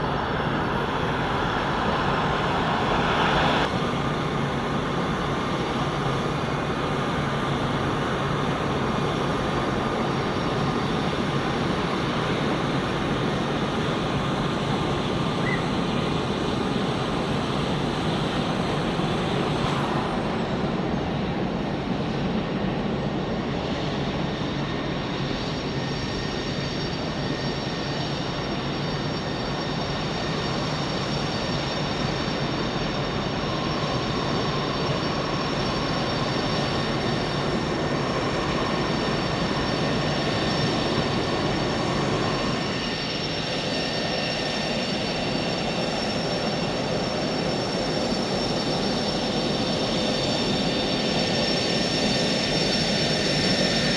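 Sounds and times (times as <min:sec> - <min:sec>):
jet engine running with whine: 0:00.0 - 0:53.9.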